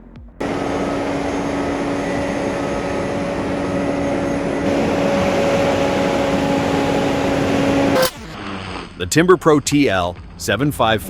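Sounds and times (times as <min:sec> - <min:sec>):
vehicle engine at high revs: 0:00.4 - 0:08.4.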